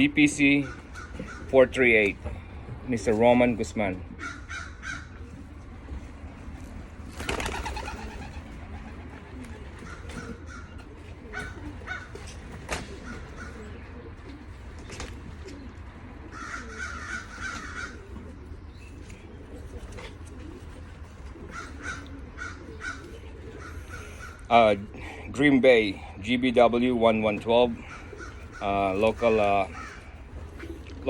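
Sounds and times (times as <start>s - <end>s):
pigeons cooing: 0.0s - 31.0s
loud flurry of noise: 6.1s - 10.2s.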